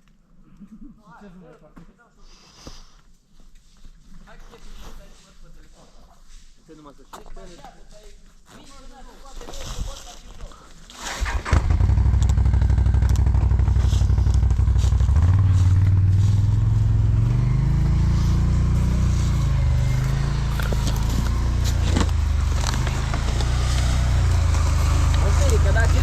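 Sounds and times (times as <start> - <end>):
atv engine idling and revving: 11.1 - 26.0.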